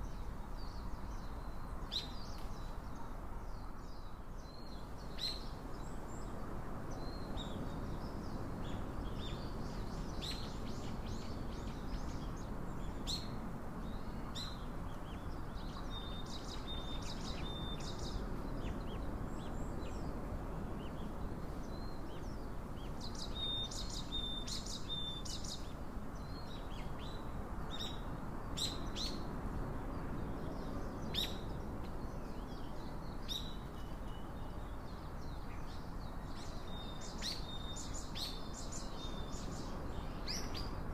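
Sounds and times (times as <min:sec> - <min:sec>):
low background hiss: 0:00.0 - 0:40.9
small birds chirping: 0:00.0 - 0:40.9.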